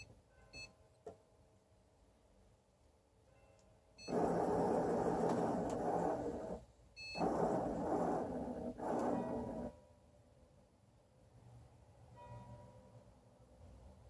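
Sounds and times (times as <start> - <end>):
short beep: 0.0 - 0.8.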